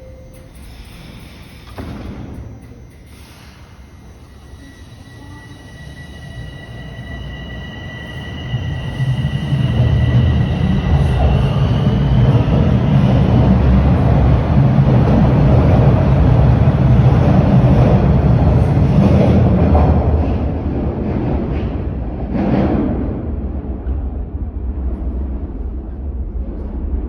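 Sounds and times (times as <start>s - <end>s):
high steady train whine: 0.0s - 27.0s
subway train rumbling: 0.0s - 27.0s.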